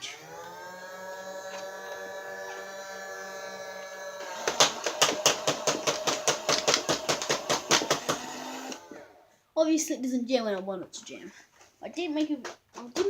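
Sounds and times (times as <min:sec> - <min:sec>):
blaster flywheels whining: 0:00.0 - 0:09.1.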